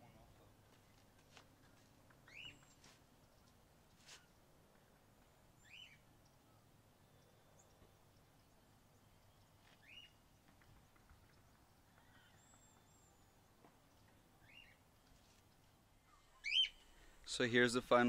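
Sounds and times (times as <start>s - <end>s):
bird chirps: 2.2s - 3.5s, 5.6s - 14.8s, 15.5s - 16.9s.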